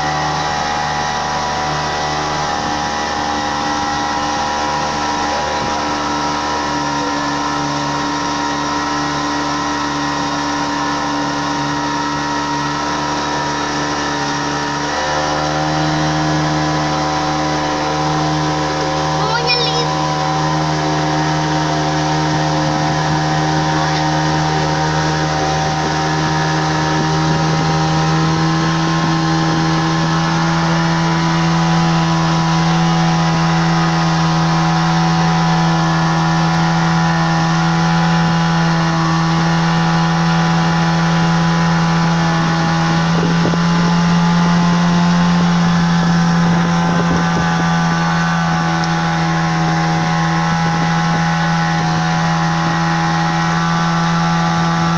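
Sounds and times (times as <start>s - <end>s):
motorboat engine drone: 0.0s - 54.9s.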